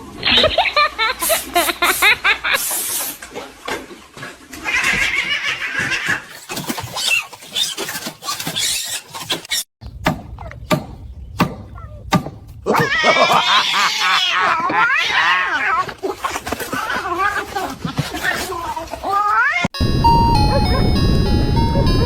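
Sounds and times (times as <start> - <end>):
laughter: 0.2 - 2.6, 12.9 - 14.5, 20.5 - 21.0
wavering animal cries: 11.7 - 12.1, 12.7 - 19.7
cat meowing: 12.7 - 16.0, 16.7 - 19.7.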